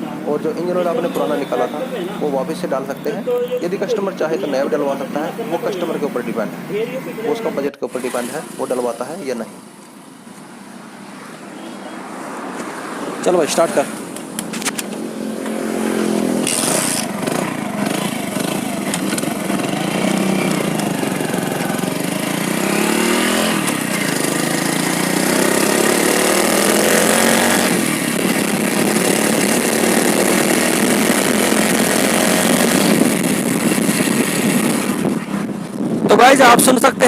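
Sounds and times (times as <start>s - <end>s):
motorcycle engine running: 15.6s - 36.2s.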